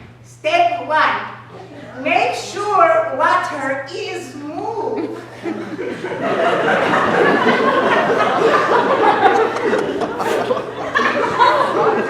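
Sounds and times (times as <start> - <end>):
people laughing: 4.8 - 12.0.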